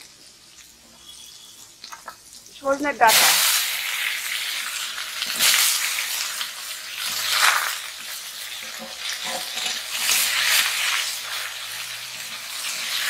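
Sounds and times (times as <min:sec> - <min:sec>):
vegetables sizzling in a wok: 0:00.0 - 0:13.0
spatula stirring in a wok: 0:03.6 - 0:13.0.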